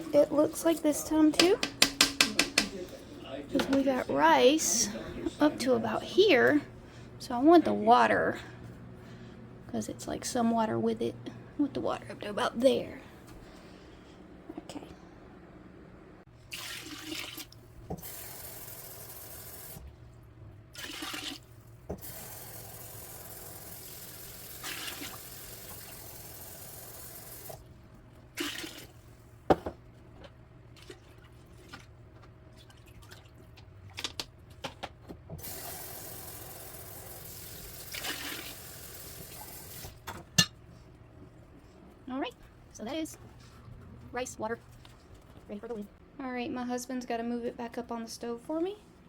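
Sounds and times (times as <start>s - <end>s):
water running into a pot: 16.4s - 19.8s, 20.8s - 27.6s, 35.4s - 40.0s.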